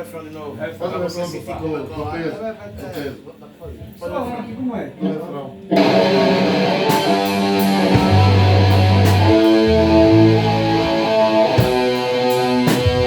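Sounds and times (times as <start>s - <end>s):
bass notes: 5.8s - 13.0s
drum hits: 5.8s - 13.0s
electric guitar chords: 5.8s - 13.0s.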